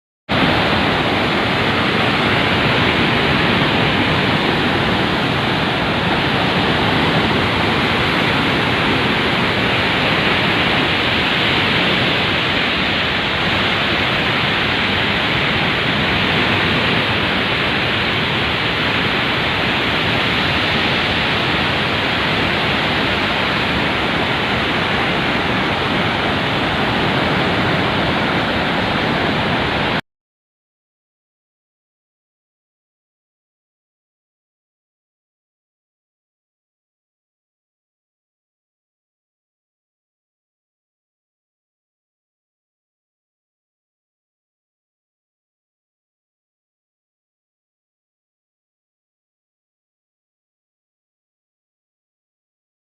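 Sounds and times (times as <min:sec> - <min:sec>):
floodwater rushing: 0:00.3 - 0:30.0.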